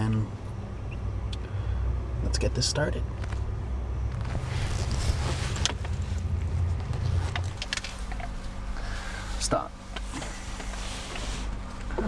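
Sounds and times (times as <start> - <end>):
wind buffeting microphone: 4.0 - 8.6
rustling: 4.1 - 9.4.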